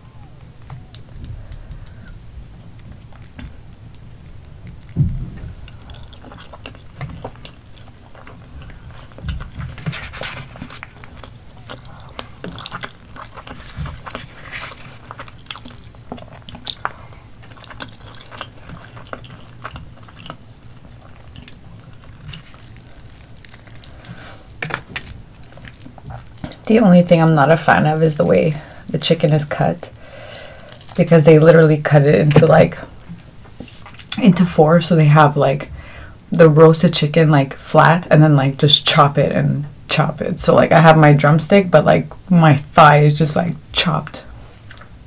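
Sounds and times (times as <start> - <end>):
close chewing and biting: 0.1 - 26.7, 28.5 - 31.1
low thump: 4.9 - 5.6.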